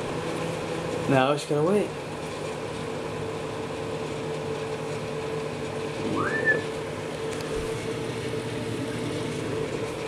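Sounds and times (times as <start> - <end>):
microwave oven humming: 0.0 - 10.0
short rising whistle: 6.0 - 6.8.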